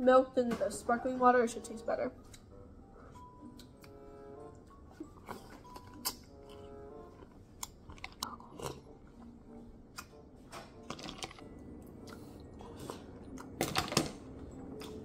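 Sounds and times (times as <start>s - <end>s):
person chewing: 4.8s - 10.2s, 11.2s - 13.6s.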